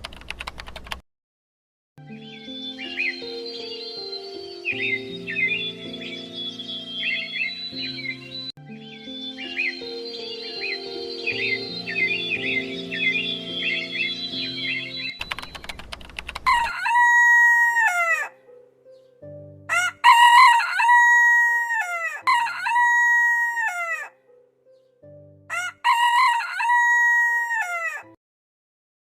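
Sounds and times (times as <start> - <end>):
rooster crowing: 16.5 - 18.3, 19.7 - 24.1, 25.5 - 28.2.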